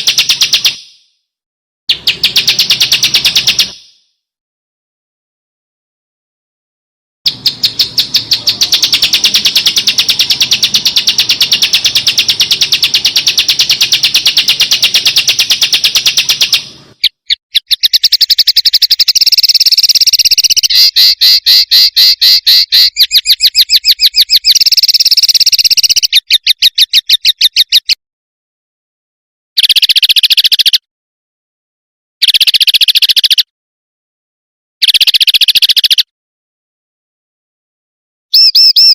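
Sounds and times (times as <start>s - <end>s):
songbird fast trill: 0.0s - 1.1s, 1.9s - 4.1s, 7.3s - 28.0s, 29.6s - 30.9s, 32.2s - 33.5s, 34.8s - 36.1s, 38.3s - 38.9s.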